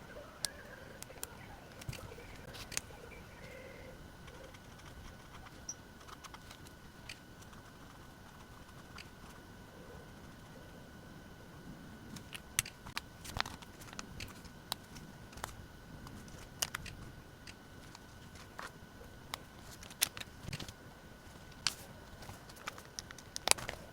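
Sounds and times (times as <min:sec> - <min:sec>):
faint high-pitched hum: 0:00.0 - 0:23.9.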